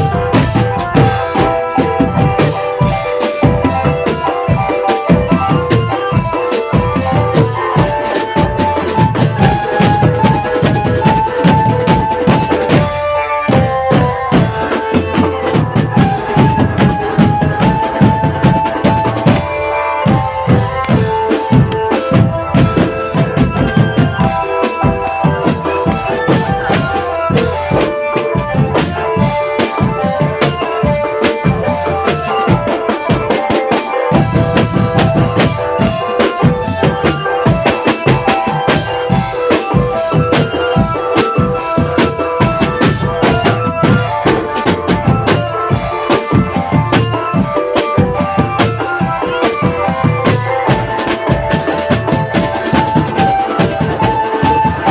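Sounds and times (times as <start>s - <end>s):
bass and snare drums: 0.0s - 54.9s
repeating marching melody: 0.0s - 54.9s.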